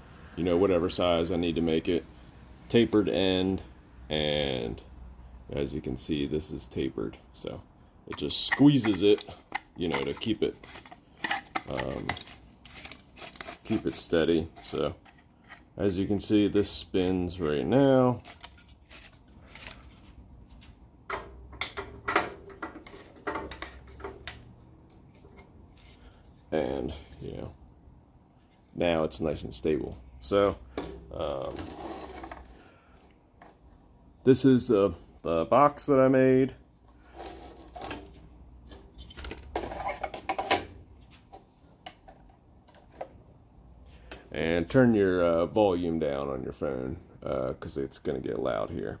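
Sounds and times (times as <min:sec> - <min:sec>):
plastic parts clicking and knocking: 0:21.1 - 0:24.4.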